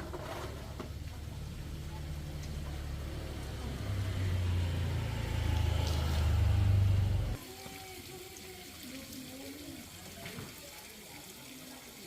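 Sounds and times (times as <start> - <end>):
engine humming: 0.0 - 7.4.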